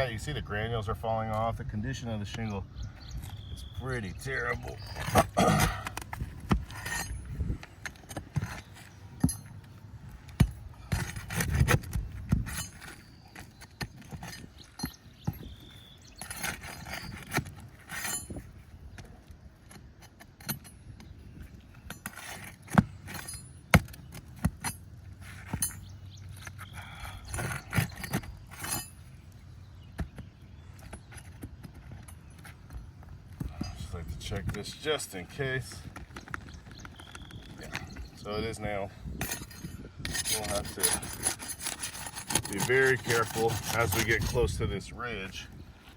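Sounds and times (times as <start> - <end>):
metal tool scraping shingles: 3.9 - 9.6, 10.4 - 18.6, 21.8 - 29.4, 38.3 - 45.4.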